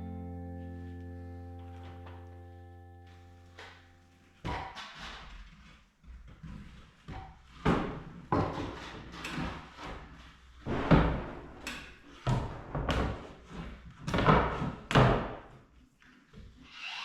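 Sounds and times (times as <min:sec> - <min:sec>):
irregular knocks and thuds: 0:10.7 - 0:15.6.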